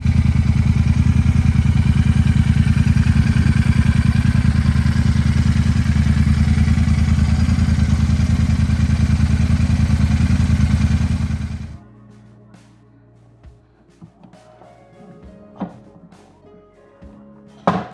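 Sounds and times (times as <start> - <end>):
vehicle engine idling: 0.0 - 11.8.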